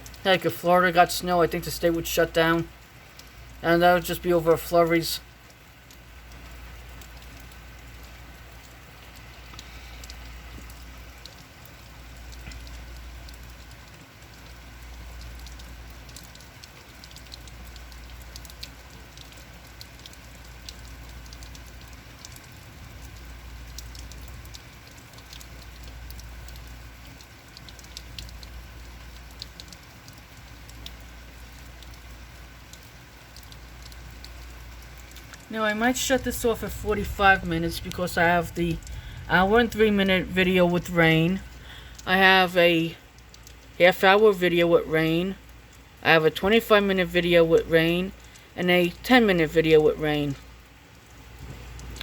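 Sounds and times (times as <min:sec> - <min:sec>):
heavy rain falling: 0:00.0 - 0:52.0
raindrops ticking close by: 0:00.0 - 0:52.0
low rumble: 0:35.0 - 0:42.2.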